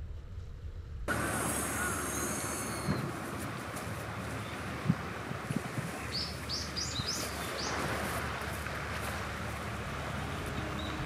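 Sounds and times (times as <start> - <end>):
outdoor background noise: 0.0 - 11.0
bird chirping: 6.0 - 7.8.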